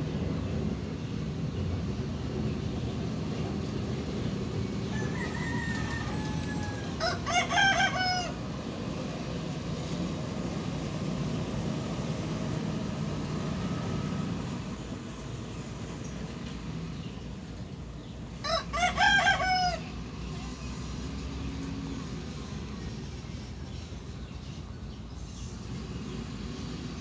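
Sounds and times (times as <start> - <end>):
rooster crowing: 4.8 - 8.4, 18.4 - 19.9.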